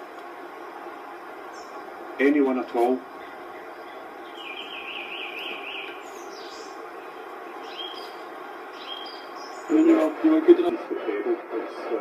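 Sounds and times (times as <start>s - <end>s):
background hiss: 0.0s - 12.0s
songbird singing: 0.5s - 2.0s, 3.1s - 10.1s.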